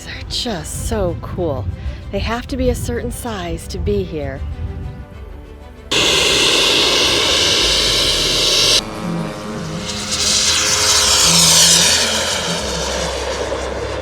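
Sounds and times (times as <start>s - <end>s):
model airplane engines roaring: 5.9s - 14.0s.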